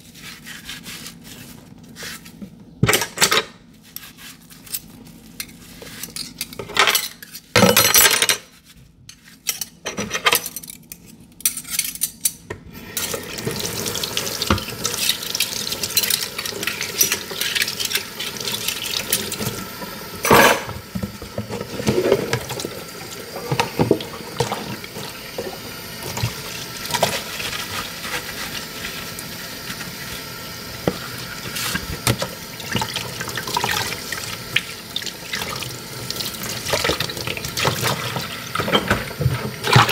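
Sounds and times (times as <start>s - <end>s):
dishes clinking: 20.2s - 20.8s.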